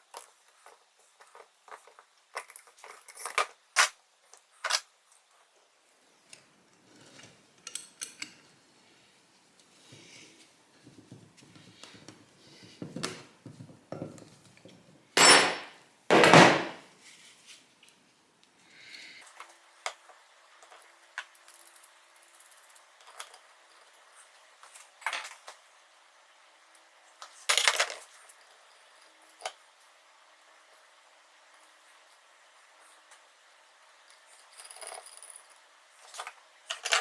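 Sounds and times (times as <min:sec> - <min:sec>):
tools and metal parts clinking: 0:15.2 - 0:16.8, 0:34.4 - 0:35.5, 0:36.2 - 0:37.0.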